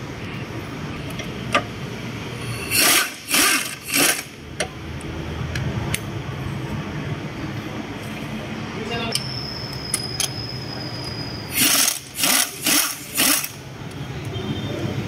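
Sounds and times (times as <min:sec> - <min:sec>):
socket tool noisy bursts: 0:02.6 - 0:04.4, 0:11.5 - 0:13.6.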